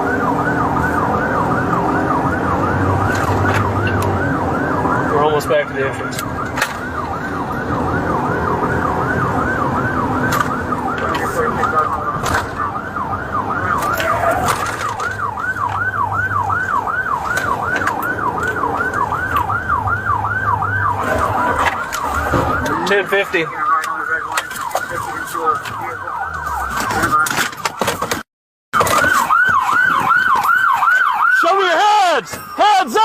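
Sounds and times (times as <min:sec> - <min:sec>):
moving car hum: 0:00.0 - 0:28.2
police siren yelping: 0:00.0 - 0:33.0.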